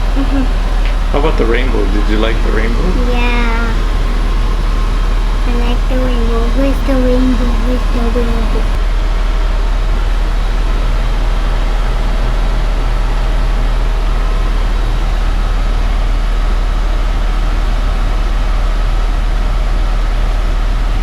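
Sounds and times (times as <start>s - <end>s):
helicopter engine and rotor: 0.0s - 8.8s.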